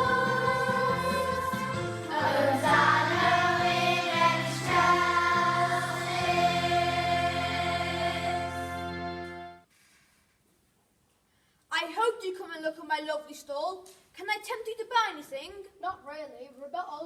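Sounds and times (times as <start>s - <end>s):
children's choir singing a carol: 0.0s - 9.3s
instrumental accompaniment: 0.0s - 9.7s.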